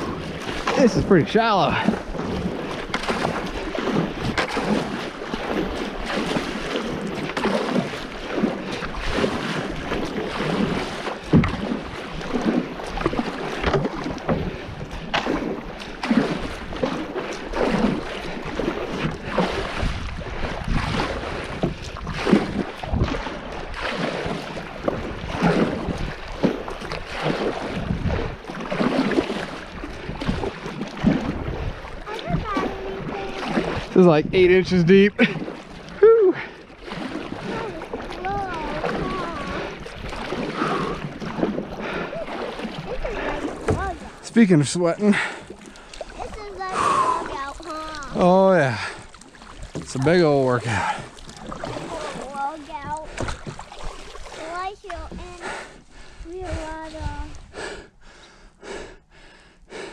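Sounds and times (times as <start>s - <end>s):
paddle splashing water: 0.0s - 59.9s.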